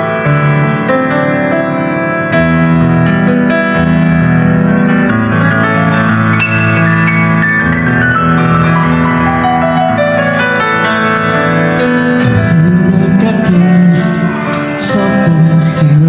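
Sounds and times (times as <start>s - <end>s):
slow piano run: 0.0s - 16.0s
person singing softly: 12.2s - 16.0s.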